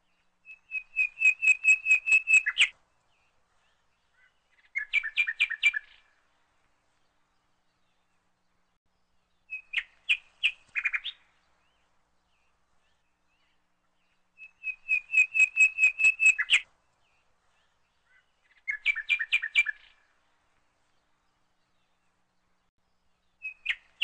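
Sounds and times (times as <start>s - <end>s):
small bird chirping: 0.1s - 2.8s, 3.7s - 6.1s, 9.3s - 20.0s, 23.3s - 24.0s.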